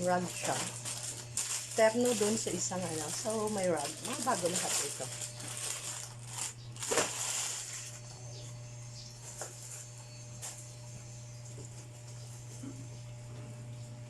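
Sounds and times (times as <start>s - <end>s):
steady low hum: 0.0s - 14.0s
packaging crinkling and rustling: 0.2s - 8.1s.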